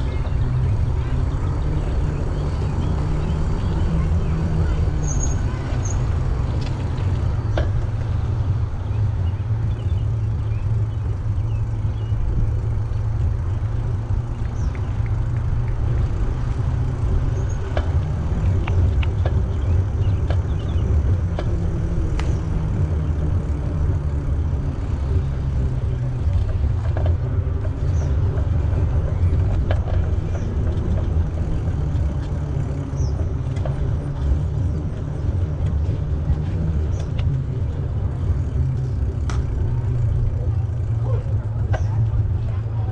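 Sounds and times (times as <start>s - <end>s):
bicycle tyre noise: 0.0s - 42.9s
light clicks and rattles: 11.9s - 42.9s.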